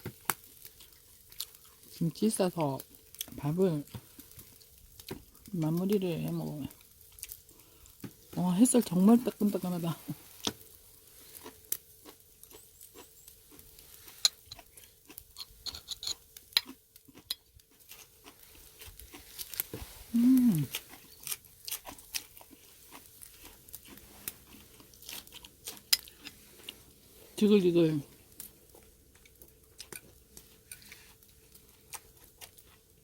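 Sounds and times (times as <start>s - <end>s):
meat crackling on charcoal: 0.0s - 33.0s
person humming: 20.1s - 20.8s.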